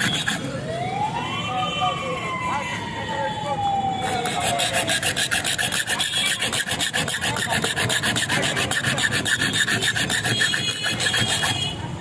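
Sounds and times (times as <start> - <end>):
metal file rasping on steel: 0.0 - 0.5, 4.1 - 11.8.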